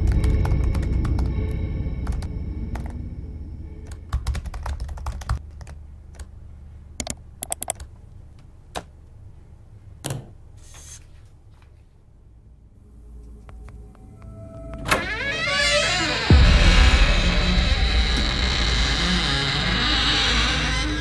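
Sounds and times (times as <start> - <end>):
computer keyboard typing: 0.0 - 1.3, 3.8 - 6.3, 7.0 - 7.9
low rumble: 0.0 - 5.1, 12.8 - 21.0.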